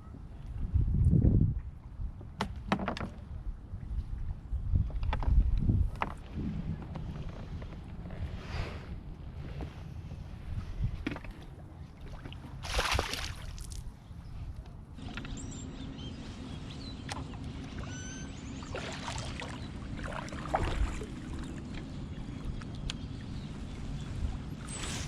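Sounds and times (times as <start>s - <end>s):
wind rumble on microphone: 0.0s - 25.0s
water sloshing and splashing: 11.0s - 13.9s, 17.0s - 25.0s.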